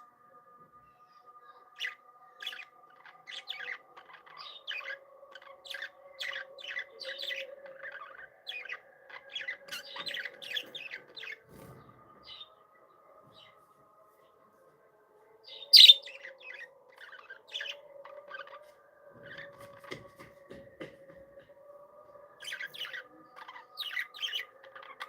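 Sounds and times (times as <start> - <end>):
budgerigars chirping: 15.6 - 16.2.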